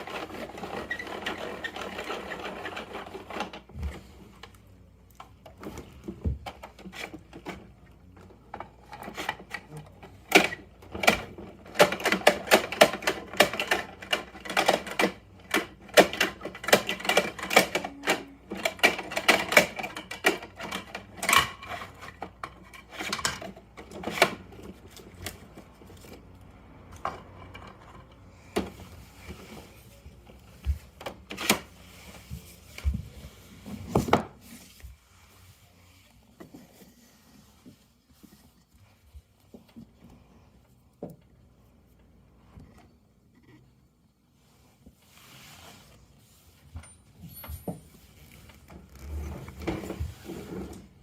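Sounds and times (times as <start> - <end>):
plastic toy truck clicking: 8.8 - 28.2.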